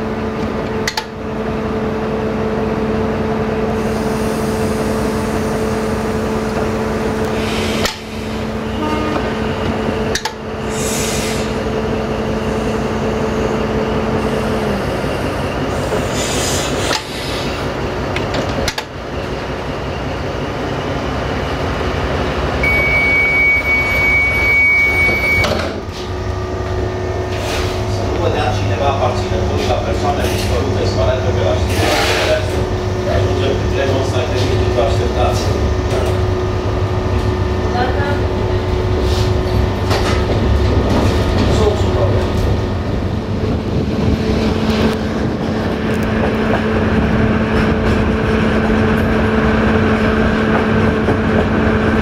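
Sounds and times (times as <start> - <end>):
diesel train engines rumbling: 0.0 - 52.0
high steady beep: 22.6 - 25.5.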